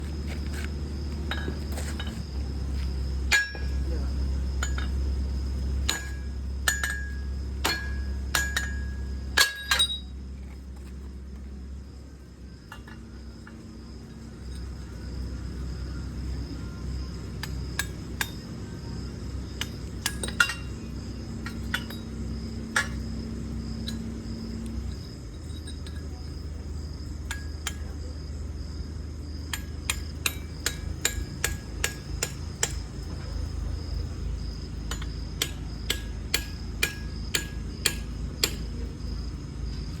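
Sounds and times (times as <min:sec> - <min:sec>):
hammer striking metal: 0:05.9 - 0:10.1, 0:29.5 - 0:32.8, 0:34.9 - 0:38.6.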